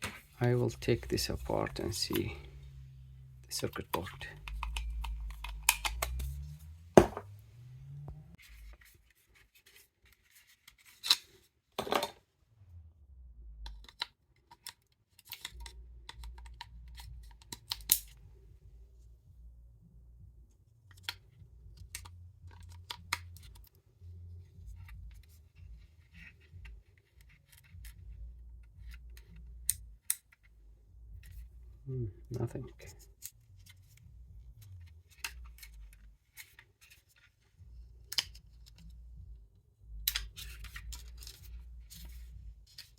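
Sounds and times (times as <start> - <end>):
plastic electronics being handled: 0.0 - 2.6, 3.5 - 7.4, 20.9 - 23.8, 24.4 - 30.6, 40.1 - 42.9.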